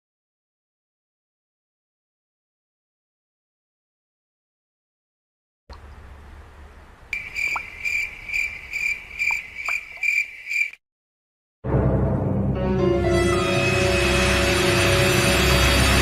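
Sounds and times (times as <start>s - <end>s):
cricket chirps: 5.8s - 10.8s
loud dramatic music: 11.6s - 16.0s.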